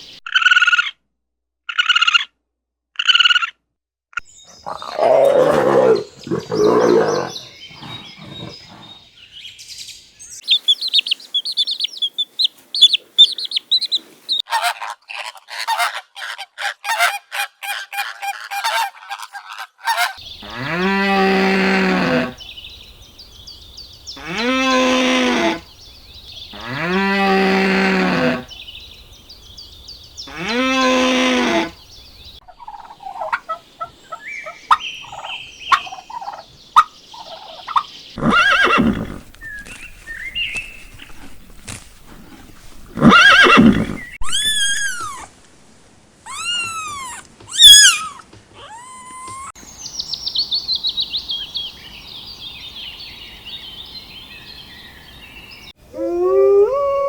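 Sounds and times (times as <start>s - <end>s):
farm animal calls: 4.5s - 9.1s, 10.5s - 22.6s, 30.2s - 45.3s, 46.3s - 49.6s.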